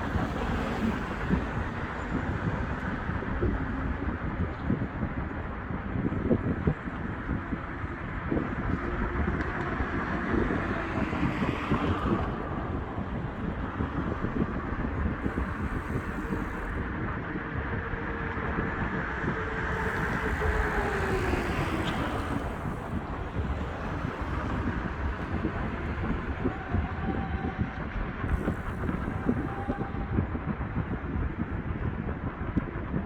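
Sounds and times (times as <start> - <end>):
traffic hum: 0.0 - 30.5
wind buffeting microphone: 0.0 - 33.0
vehicle passing: 19.1 - 26.4.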